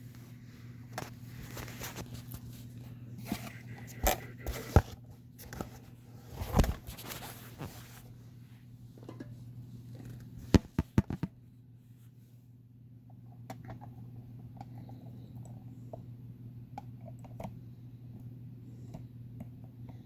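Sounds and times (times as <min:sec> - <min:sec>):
handling knocks rustles and scrapes: 0:00.0 - 0:08.2.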